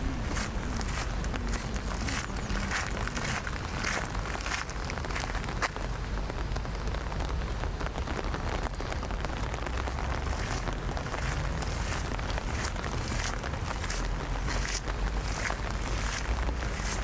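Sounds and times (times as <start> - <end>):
low rumble: 0.0 - 17.0
steady rain falling: 0.0 - 17.0.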